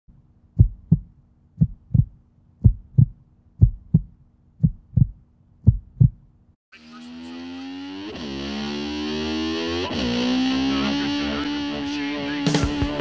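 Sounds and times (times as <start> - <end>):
heartbeat thumps: 0.5 - 6.3, 12.5 - 13.0.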